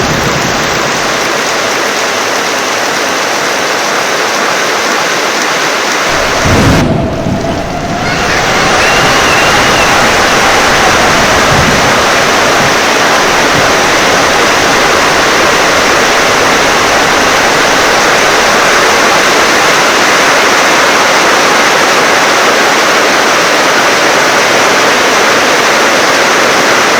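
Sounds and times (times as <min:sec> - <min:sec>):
heavy rain pouring: 0:00.0 - 0:26.9
low rumble of thunder: 0:06.1 - 0:20.5.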